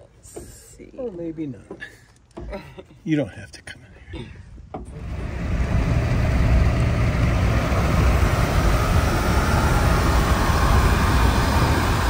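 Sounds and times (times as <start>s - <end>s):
vehicle engine and road rumble: 4.8s - 12.0s.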